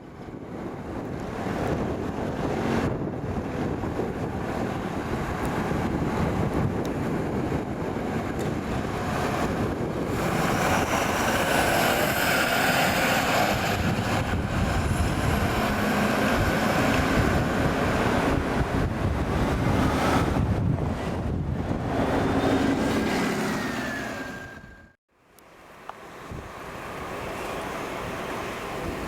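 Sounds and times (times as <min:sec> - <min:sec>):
fire truck driving past: 0:00.0 - 0:25.0.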